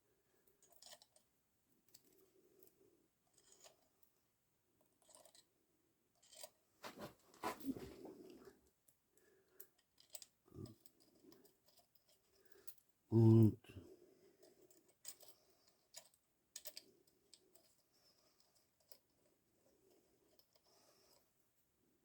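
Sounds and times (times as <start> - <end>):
small metal parts clinking: 14.5 - 17.8.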